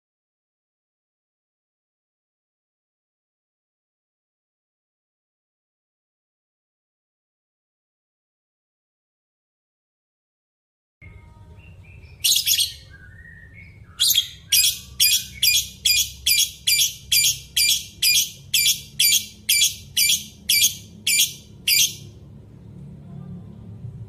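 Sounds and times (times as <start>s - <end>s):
soft whistles: 12.0s - 14.7s
bird calling loudly: 14.0s - 22.1s.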